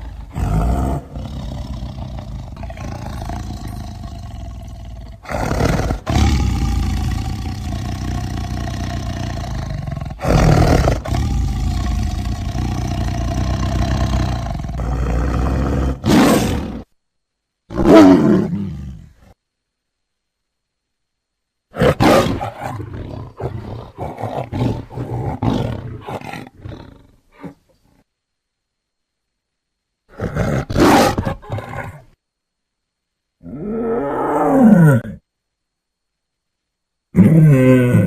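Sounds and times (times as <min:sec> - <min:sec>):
tiger growling: 0:00.0 - 0:16.9, 0:17.7 - 0:19.4, 0:21.7 - 0:27.6, 0:30.1 - 0:32.2
tiger roaring: 0:00.0 - 0:16.9, 0:17.7 - 0:19.2, 0:21.7 - 0:27.6, 0:30.1 - 0:32.1, 0:33.4 - 0:35.2, 0:37.1 - 0:38.0.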